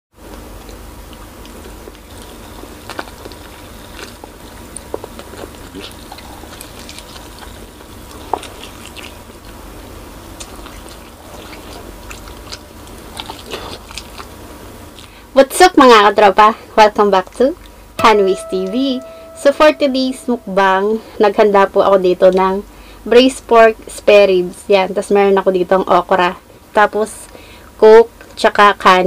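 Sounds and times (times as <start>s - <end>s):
chewing ribs: 0.2s - 15.2s.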